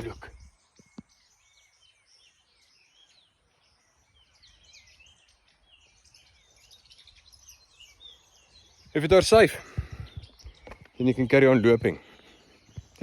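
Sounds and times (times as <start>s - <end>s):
faint birdsong: 0.0s - 13.0s.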